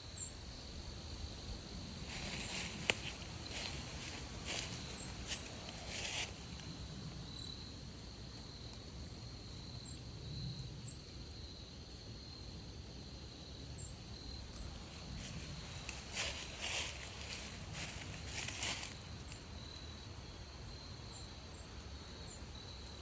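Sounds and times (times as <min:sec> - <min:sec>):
crickets trilling: 0:00.0 - 0:23.0
footsteps crunching on trail: 0:02.0 - 0:06.6, 0:14.7 - 0:19.4.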